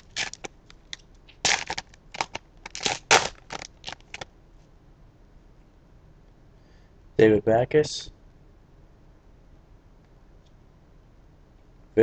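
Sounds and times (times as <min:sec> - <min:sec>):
wrapper crinkling as torn open: 0:00.0 - 0:04.3.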